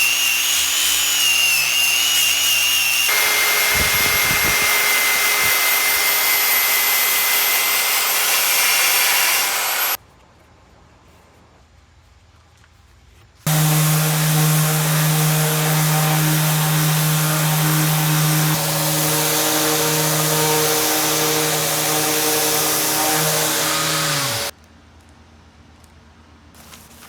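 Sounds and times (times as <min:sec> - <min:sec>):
power tool motor running: 0:00.0 - 0:10.0, 0:13.5 - 0:24.5.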